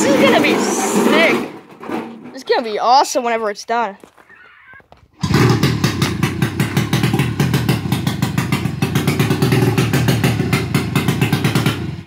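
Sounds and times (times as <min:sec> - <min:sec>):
snowmobile engine running: 0:05.2 - 0:12.0.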